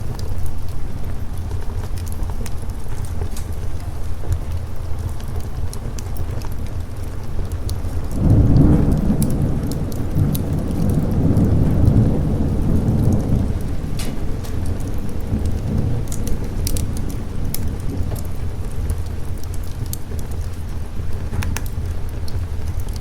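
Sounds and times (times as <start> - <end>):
light crackles: 0.0 - 23.0
rolling thunder: 0.0 - 23.0
steady rain: 0.0 - 23.0.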